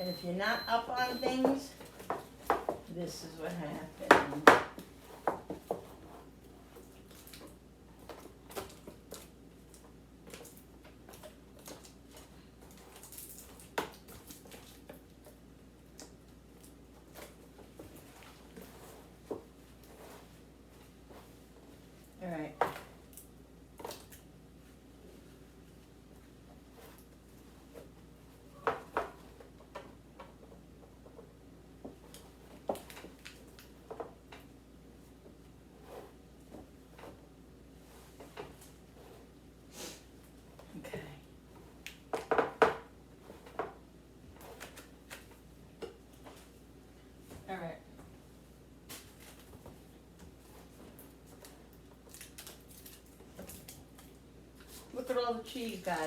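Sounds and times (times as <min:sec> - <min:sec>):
food containers knocking and clicking: 0:04.0 - 0:05.9, 0:42.1 - 0:42.9
packaging rustle: 0:51.3 - 0:54.2.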